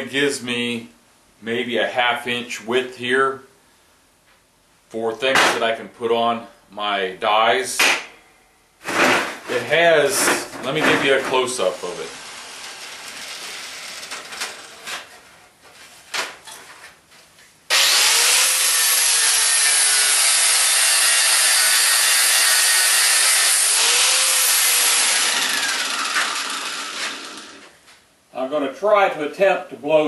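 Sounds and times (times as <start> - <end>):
power tool cutting steel: 11.6 - 14.8, 17.7 - 27.7.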